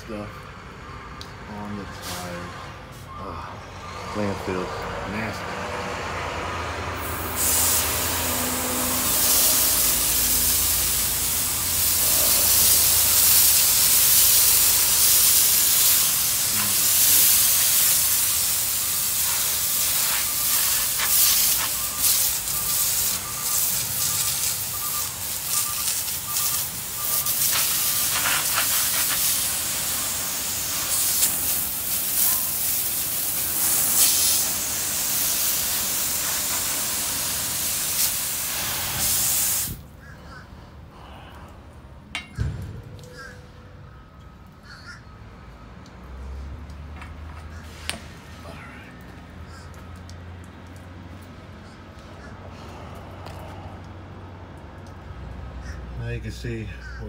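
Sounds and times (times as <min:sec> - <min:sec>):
engine running low: 0:00.0 - 0:56.2
water jet spraying tyres: 0:04.2 - 0:40.4, 0:45.9 - 0:54.0.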